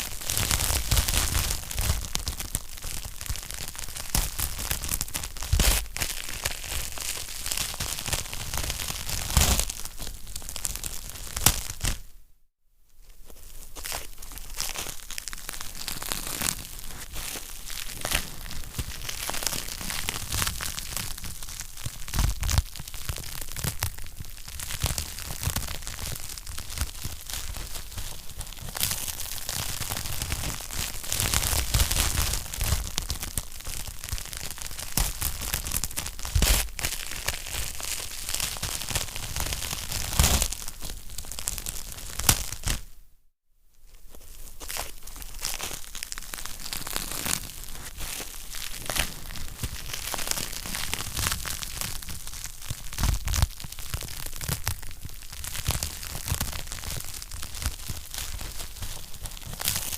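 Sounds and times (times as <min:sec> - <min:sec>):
wood fire crackling and popping: 0:45.5 - 0:59.9.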